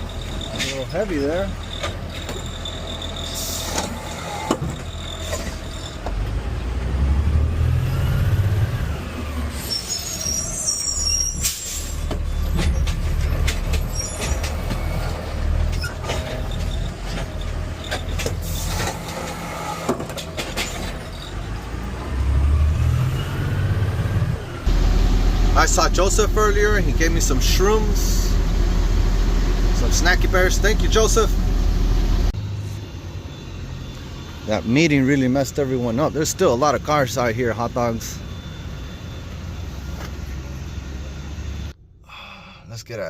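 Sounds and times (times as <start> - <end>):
diesel truck engine revving: 0.0 - 19.9, 20.9 - 34.5.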